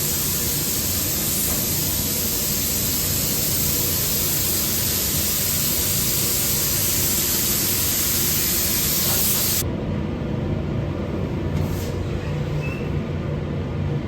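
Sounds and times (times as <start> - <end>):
paint spray gun hissing: 0.0 - 9.6
steady low hum: 0.0 - 12.4.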